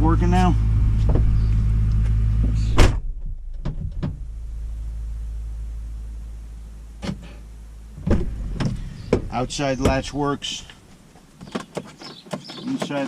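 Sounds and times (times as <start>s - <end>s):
low hum: 0.0s - 11.3s
car door shutting with a thud: 0.9s - 1.5s, 2.4s - 4.2s, 8.0s - 10.2s.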